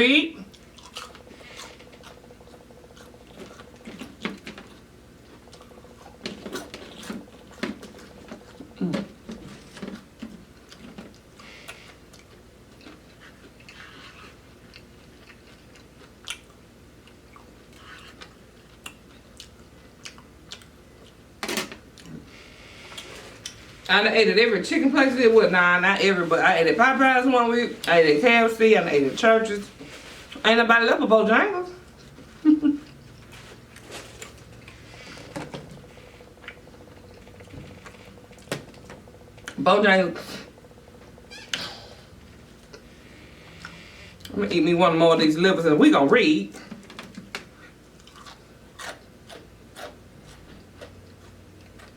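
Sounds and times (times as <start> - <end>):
chewing fried chicken: 0.4 - 23.9, 31.8 - 39.6, 46.6 - 51.9.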